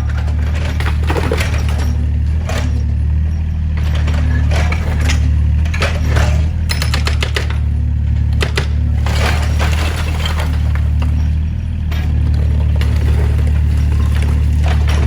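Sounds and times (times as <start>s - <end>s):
demolition debris cracking: 0.0s - 15.0s
diesel excavator engine running: 0.0s - 15.0s.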